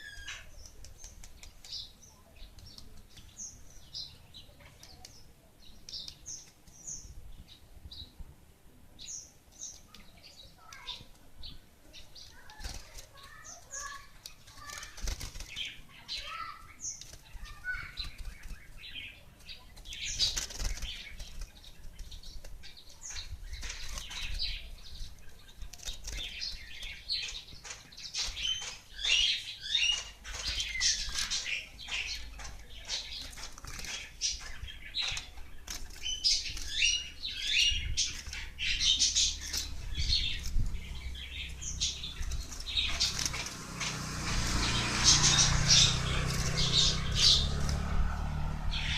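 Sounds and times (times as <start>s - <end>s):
bird wings fluttering: 12.2s - 18.9s, 19.7s - 28.9s, 32.4s - 37.0s, 42.1s - 48.7s.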